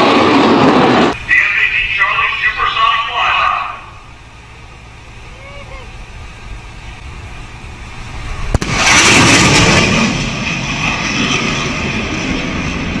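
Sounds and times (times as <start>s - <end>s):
jet rumble and roar: 0.0s - 13.0s
sharp sonic crack: 8.4s - 12.0s.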